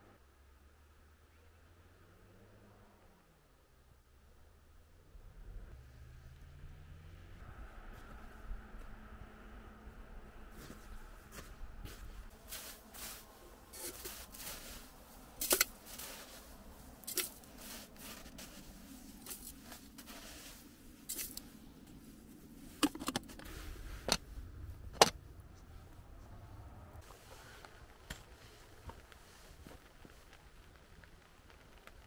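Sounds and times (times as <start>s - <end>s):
soft rustling: 10.6s - 24.4s, 27.0s - 32.0s
objects clicking and knocking: 15.4s - 16.2s, 22.8s - 24.2s.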